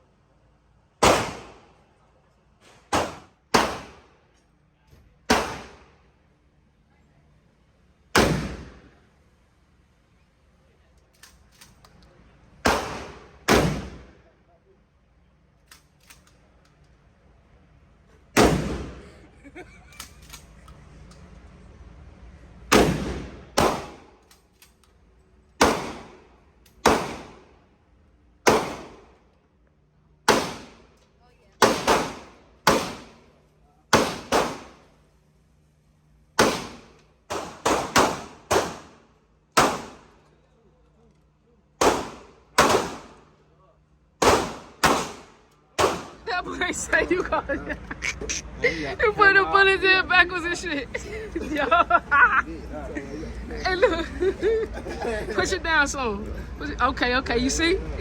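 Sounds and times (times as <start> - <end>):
gunshots: 1.0 - 1.8, 2.9 - 4.1, 5.3 - 6.0, 8.1 - 8.9, 12.6 - 14.2, 18.4 - 19.1, 22.7 - 24.2, 25.6 - 27.6, 28.4 - 29.2, 30.2 - 30.9, 31.6 - 33.3, 33.9 - 34.9, 36.3 - 40.2, 41.8 - 43.3, 44.2 - 46.2.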